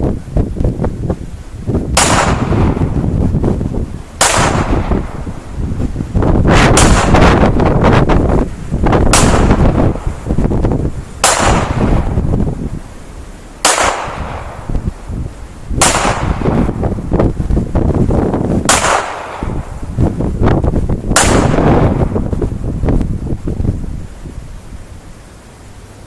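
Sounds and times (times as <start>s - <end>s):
wind buffeting microphone: 0.0s - 25.3s
pistol shots: 2.0s - 2.8s, 4.2s - 5.1s, 6.6s - 7.3s, 9.1s - 9.6s, 11.2s - 12.1s, 13.6s - 14.6s, 15.8s - 16.7s, 18.7s - 19.6s, 21.2s - 22.1s.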